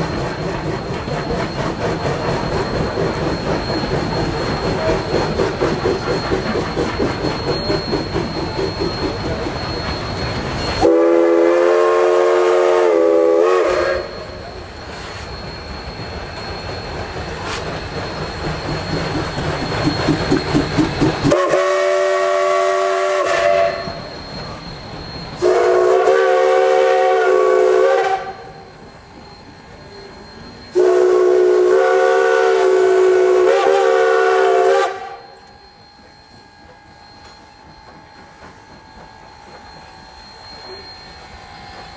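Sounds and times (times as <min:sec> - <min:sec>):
steam locomotive chuffing: 0:00.0 - 0:41.9
steam whistle blasts: 0:10.6 - 0:15.3, 0:21.2 - 0:24.6, 0:25.3 - 0:28.8, 0:30.0 - 0:37.7.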